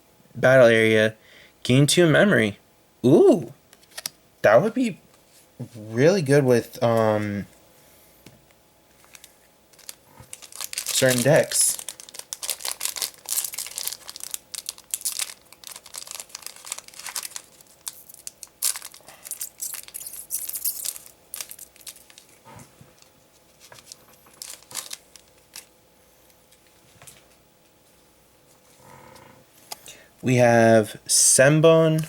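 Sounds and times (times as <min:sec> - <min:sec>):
wrapper tearing and crinkling: 0:09.1 - 0:22.4, 0:23.0 - 0:25.7.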